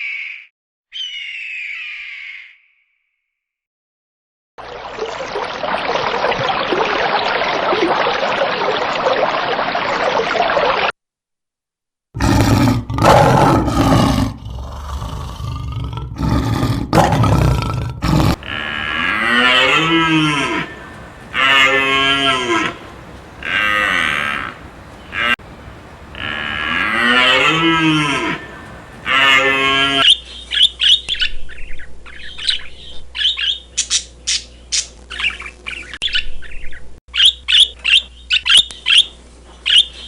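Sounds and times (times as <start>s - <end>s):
cattle mooing: 18.1s - 30.0s
dense steady noise: 18.3s - 30.0s.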